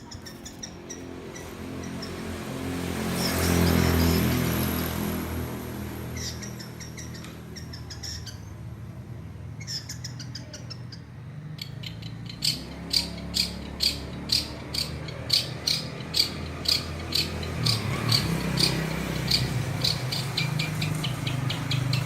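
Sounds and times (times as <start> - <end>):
bird mimicking chirps: 0.0 - 2.2, 6.2 - 8.6, 9.6 - 22.0
loud regular bird chirp: 0.0 - 5.0, 6.0 - 8.7, 9.5 - 22.0.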